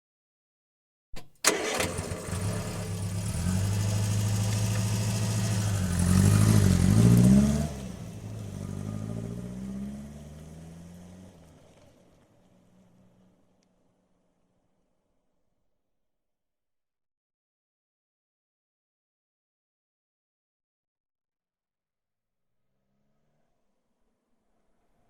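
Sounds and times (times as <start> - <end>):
ignition click: 1.2 - 2.9
car engine idling and revving: 1.4 - 13.7.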